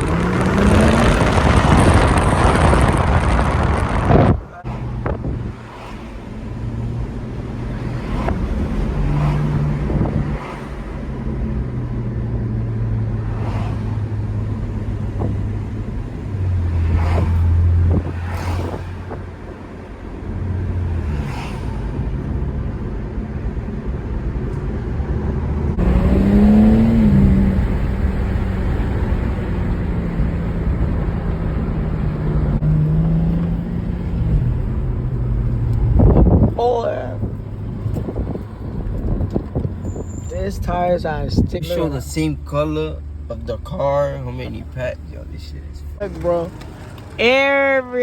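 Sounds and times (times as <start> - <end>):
rising and falling tone: 0.0 - 4.5
car engine drone: 0.0 - 48.0.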